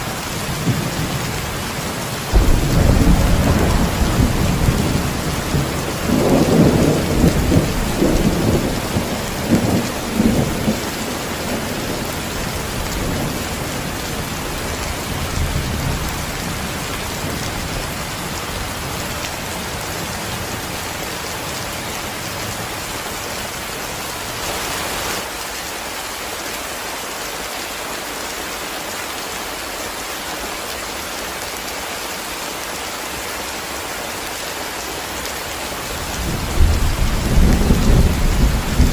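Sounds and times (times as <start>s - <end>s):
heavy rain falling: 0.0s - 38.9s
loud thunder rumbling: 2.3s - 18.0s, 36.0s - 38.9s.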